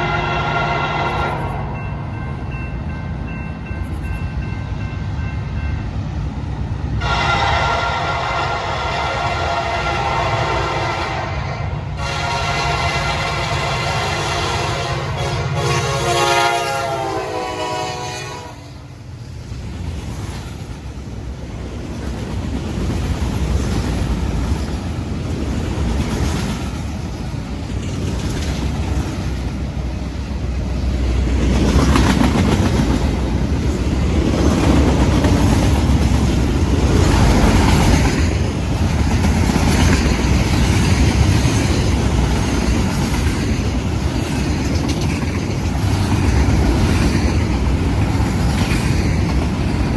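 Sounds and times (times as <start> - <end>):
train horn chord: 0.0 - 1.8, 7.0 - 18.8
train rumbling and wheel clatter: 0.0 - 49.9.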